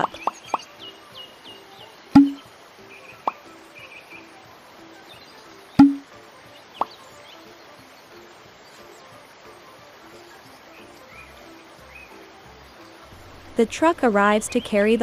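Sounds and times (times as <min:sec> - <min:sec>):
faint bird and insect chirps: 0:00.0 - 0:15.0
cartoon light pop: 0:02.2 - 0:02.4, 0:05.8 - 0:06.0.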